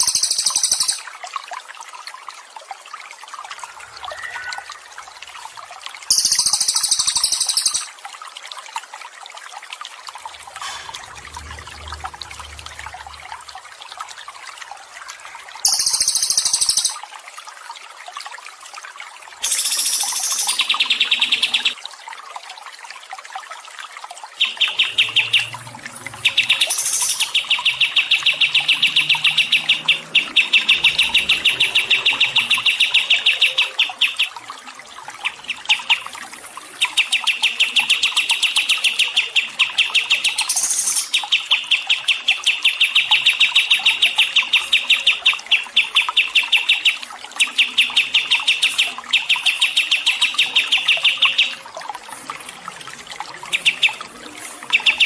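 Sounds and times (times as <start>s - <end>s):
songbird trilling: 0.0s - 1.0s, 4.0s - 4.9s, 6.1s - 7.9s, 15.7s - 17.0s
high sweeping bird note: 3.7s - 5.2s.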